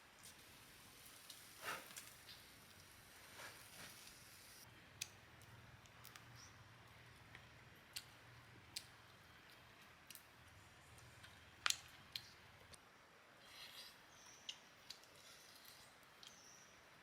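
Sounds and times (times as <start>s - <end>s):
faint low hum: 0.0s - 17.0s
faint clicks and snaps: 5.0s - 6.4s, 7.3s - 10.3s, 11.0s - 12.8s, 14.4s - 16.5s.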